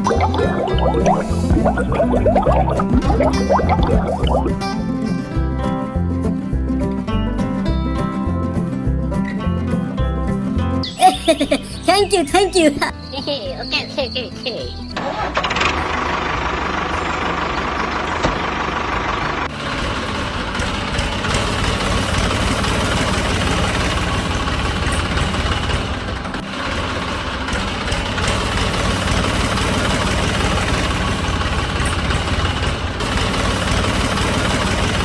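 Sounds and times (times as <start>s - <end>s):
engine idling: 15.1s - 35.0s.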